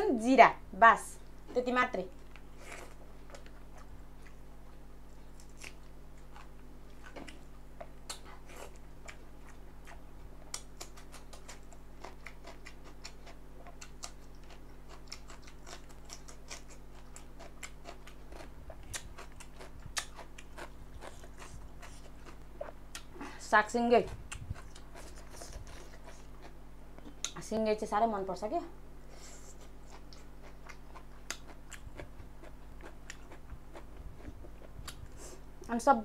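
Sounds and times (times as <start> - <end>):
low electrical hum: 0.0 - 36.0
person chewing food: 2.2 - 23.3, 24.1 - 27.4, 29.2 - 35.6.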